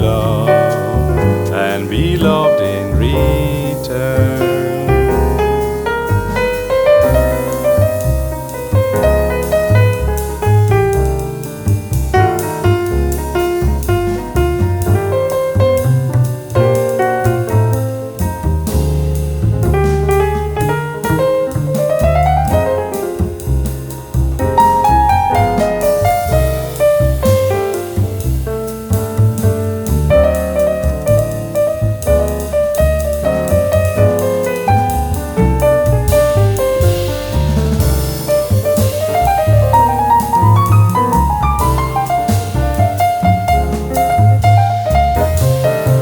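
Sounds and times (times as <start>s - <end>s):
bass line: 0.0s - 46.0s
jazz piano runs: 0.0s - 46.0s
light drums: 0.0s - 46.0s.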